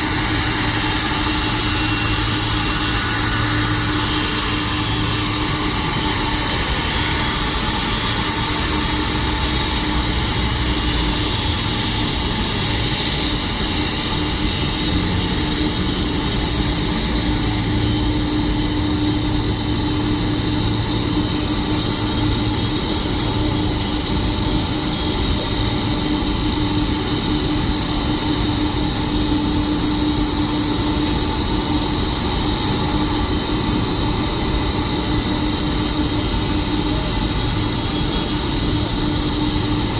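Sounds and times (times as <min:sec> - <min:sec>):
jet engines idling: 0:00.0 - 0:39.9.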